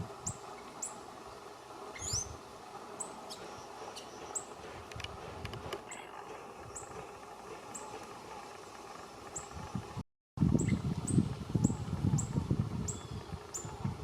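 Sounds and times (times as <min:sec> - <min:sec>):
gliding bird call: 0:00.2 - 0:04.8
high thin bird chirps: 0:01.9 - 0:02.4.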